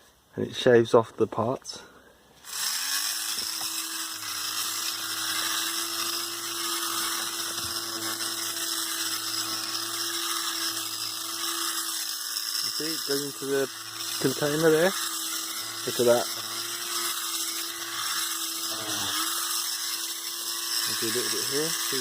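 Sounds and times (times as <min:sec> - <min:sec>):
fabric shaver motor whirring: 0:02.4 - 0:22.0.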